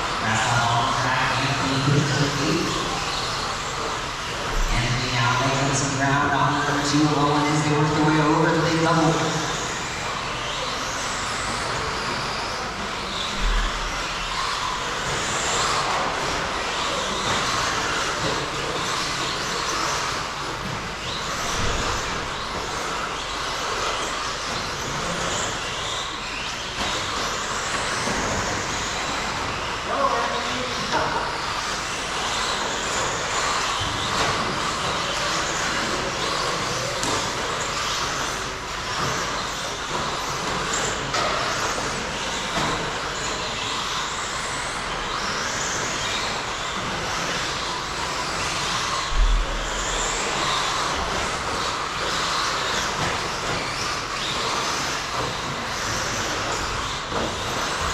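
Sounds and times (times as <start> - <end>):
rc trucks motor whine: 0.0 - 57.9.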